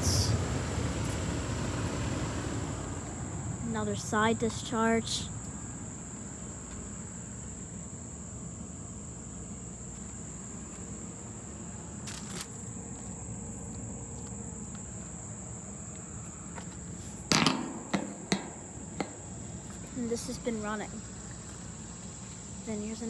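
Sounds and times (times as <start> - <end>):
constant low hum: 0.0 - 23.0
sharp knocks: 17.3 - 20.0.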